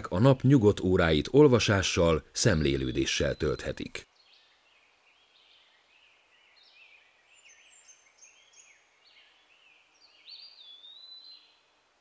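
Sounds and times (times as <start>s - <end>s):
faint songbirds chirping: 0.0s - 12.0s.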